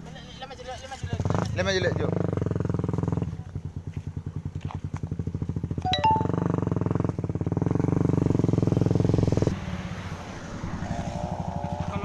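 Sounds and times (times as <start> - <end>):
motorcycle engine running: 0.4 - 9.6, 10.9 - 12.0
short high tone: 5.9 - 6.5.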